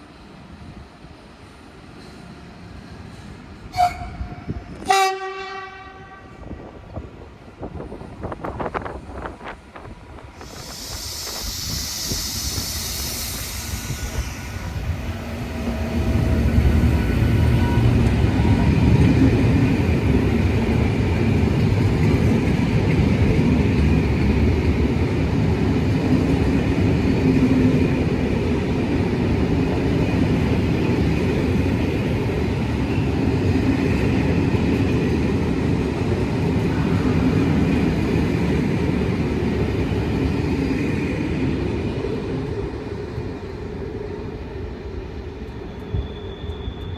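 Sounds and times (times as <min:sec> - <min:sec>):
train rumbling past: 0:00.0 - 0:46.9
air hissing: 0:10.3 - 0:16.0.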